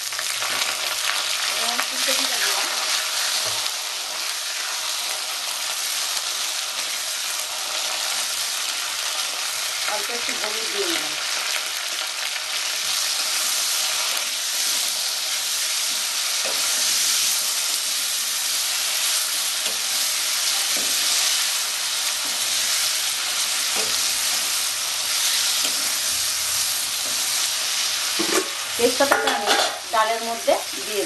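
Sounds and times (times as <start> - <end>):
vegetables sizzling in hot oil: 0.0 - 31.0
metal spatula stirring: 28.1 - 29.8.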